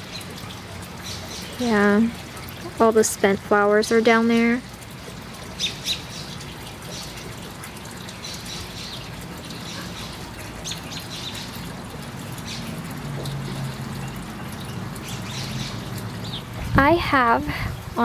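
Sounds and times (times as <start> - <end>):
small birds chirping: 5.6 - 7.3, 8.1 - 11.7, 12.4 - 16.5.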